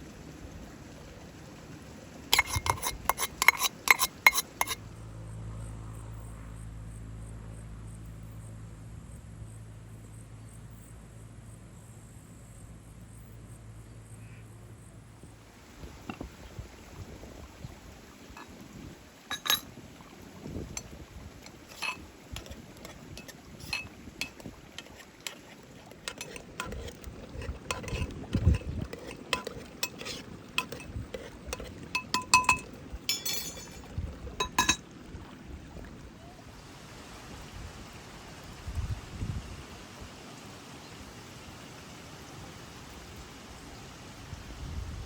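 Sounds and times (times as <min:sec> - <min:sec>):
dishes and utensils clinking: 0:02.4 - 0:04.8, 0:19.3 - 0:19.7, 0:20.7 - 0:34.8.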